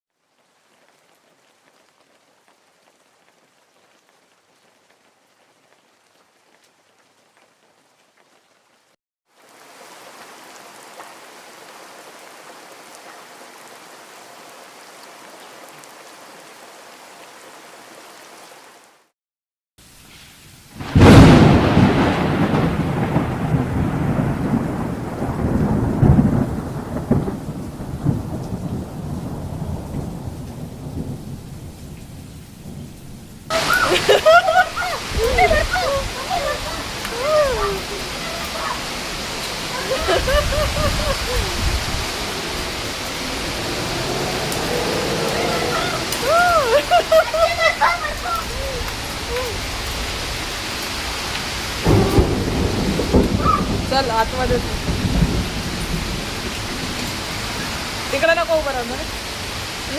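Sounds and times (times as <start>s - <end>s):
rain falling: 0.1s - 19.1s, 19.8s - 59.9s
thunderclap rolling into rumble: 20.8s - 31.9s, 33.5s - 50.5s, 51.8s - 59.0s.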